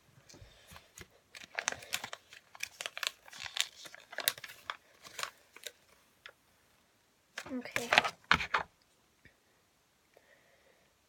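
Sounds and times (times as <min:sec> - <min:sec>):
paper leaflet crinkling: 0:00.3 - 0:06.4, 0:07.4 - 0:08.7.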